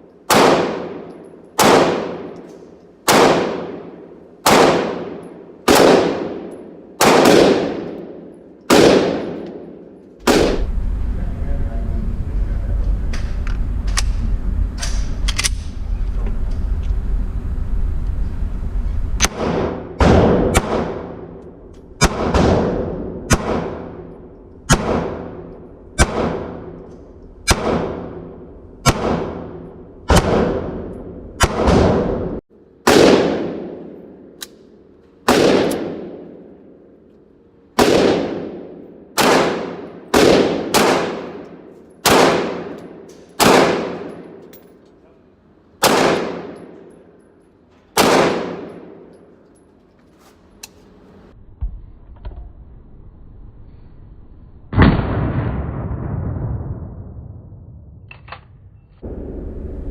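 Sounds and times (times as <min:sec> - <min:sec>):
steady low rumble: 0:00.0 - 0:49.6, 0:50.5 - 0:59.9
gunshots with ringing echo: 0:00.3 - 0:02.4, 0:03.0 - 0:10.7, 0:19.2 - 0:21.4, 0:22.0 - 0:26.8, 0:27.4 - 0:34.3, 0:35.2 - 0:36.6, 0:37.8 - 0:44.4, 0:45.8 - 0:47.2, 0:48.0 - 0:49.1, 0:54.7 - 0:57.7.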